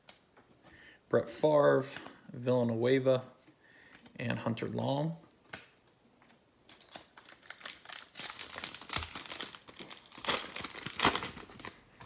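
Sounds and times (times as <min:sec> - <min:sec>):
foil wrapper crinkling: 0:06.7 - 0:12.0.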